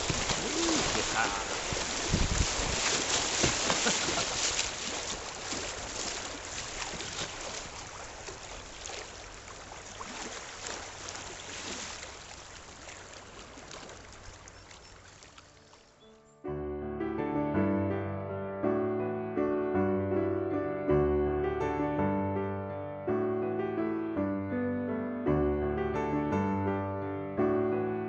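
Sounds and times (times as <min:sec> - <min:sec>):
river water rushing: 0:00.0 - 0:15.8
small water splashes: 0:00.0 - 0:16.0.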